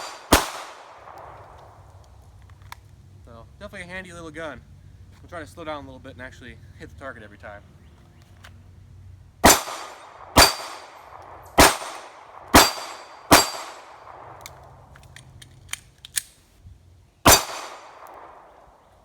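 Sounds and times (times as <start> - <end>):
pistol shots: 0.0 - 1.4, 9.4 - 14.4, 17.2 - 18.8
bullets clanging on steel: 9.4 - 14.0.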